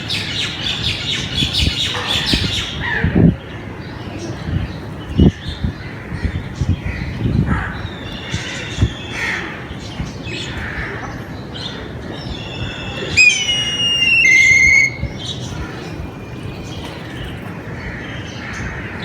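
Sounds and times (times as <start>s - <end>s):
birds calling and chirping: 0.0s - 19.0s
loud drawn-out bird call: 12.4s - 16.7s.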